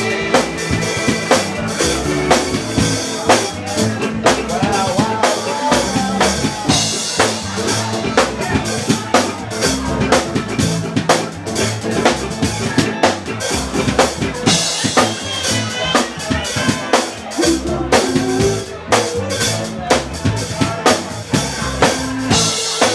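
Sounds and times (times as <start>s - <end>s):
bass line: 0.0s - 22.9s
drum kit beat: 0.0s - 22.9s
pitched melodic line: 17.3s - 19.8s.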